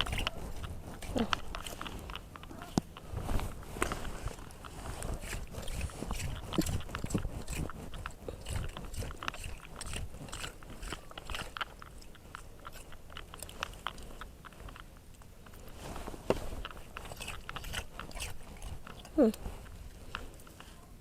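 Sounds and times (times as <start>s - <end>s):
rake scraping through wet sand: 0.0s - 11.6s.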